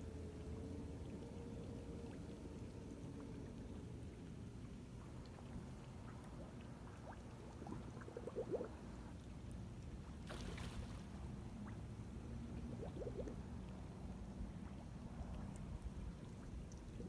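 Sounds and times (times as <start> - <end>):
low water rumble: 0.0 - 17.0.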